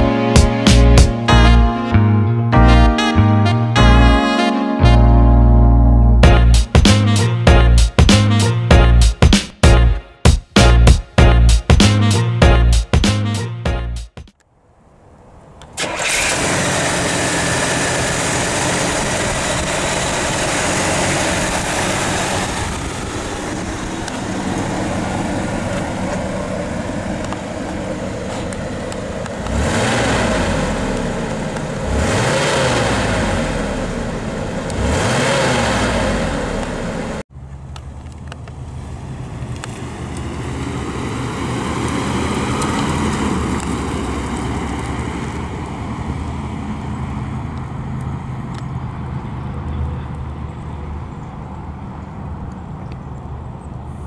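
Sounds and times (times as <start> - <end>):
car driving off: 14.7 - 54.0
car engine idling and revving: 14.8 - 54.0.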